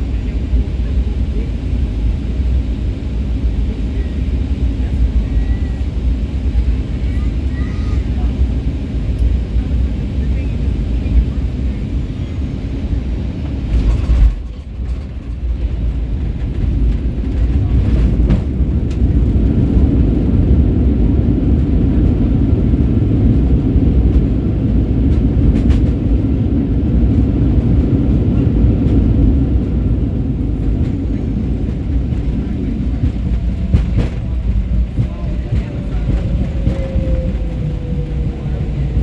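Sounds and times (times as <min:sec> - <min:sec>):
low rumble of engines and runway: 0:00.0 - 0:39.0
airplane landing jolt: 0:12.3 - 0:39.0.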